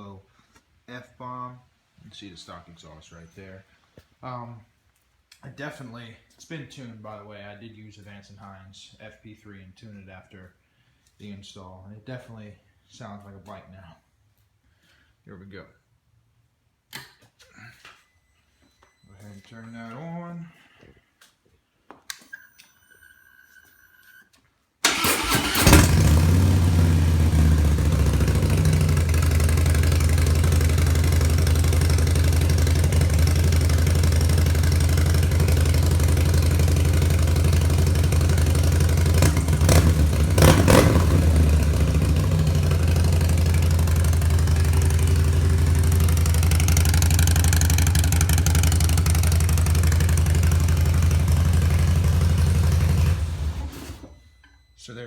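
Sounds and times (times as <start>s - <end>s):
short beep: 22.1s - 24.3s, 54.1s - 55.0s
motorcycle engine revving and idling: 24.9s - 53.8s.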